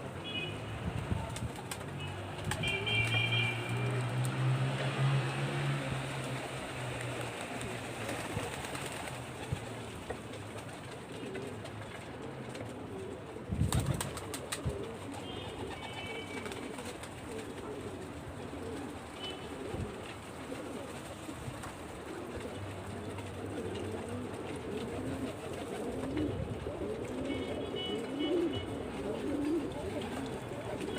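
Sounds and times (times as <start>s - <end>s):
pigeons cooing: 2.5s - 30.9s.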